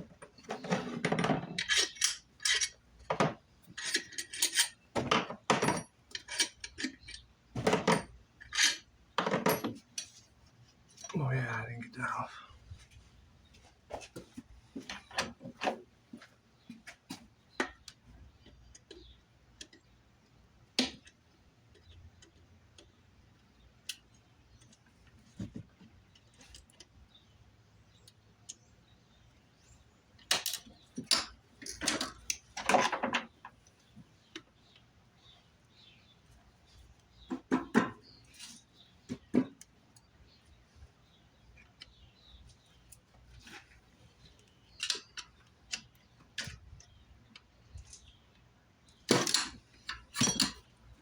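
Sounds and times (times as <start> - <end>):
clicks and clinks of hand work: 0.1 - 11.2, 30.1 - 34.9, 41.4 - 51.0.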